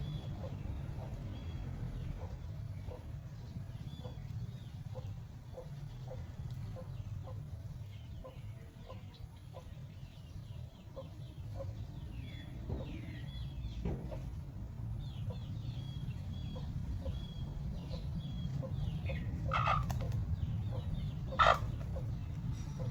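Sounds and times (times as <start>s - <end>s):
steady low rumble: 0.0s - 22.9s
chicken clucking: 16.2s - 22.9s.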